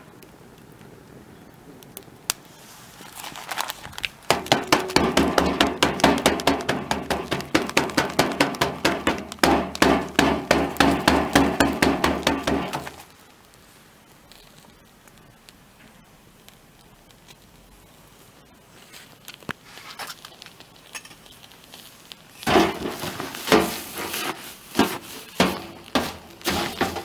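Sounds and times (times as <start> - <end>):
rapid hammer strikes: 4.3 - 13.0, 22.5 - 27.0.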